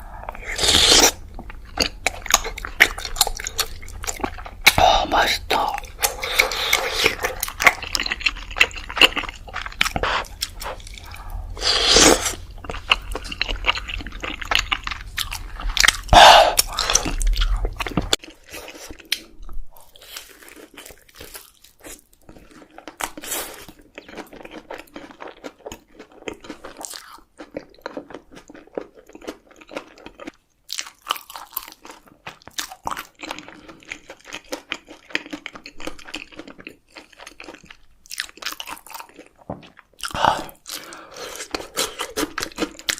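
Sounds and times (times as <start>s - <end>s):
crunching and chewing food: 0.1s - 42.9s
wet mouth sounds: 0.3s - 18.2s.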